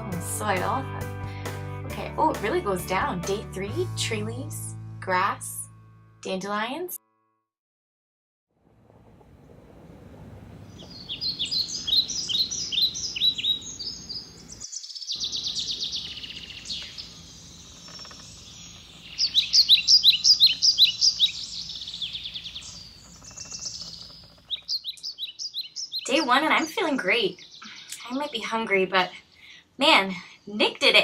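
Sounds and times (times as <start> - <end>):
low outdoor rumble: 8.6 - 14.6
songbirds chirping: 10.5 - 30.7
bird trill: 10.7 - 27.9.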